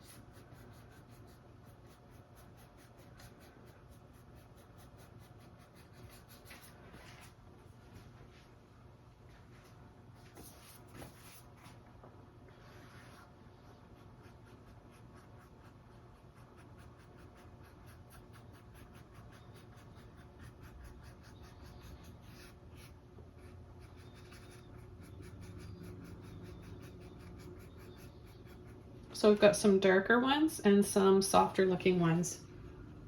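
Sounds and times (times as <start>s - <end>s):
paintbrush strokes on canvas: 9.5s - 11.8s, 12.5s - 15.7s.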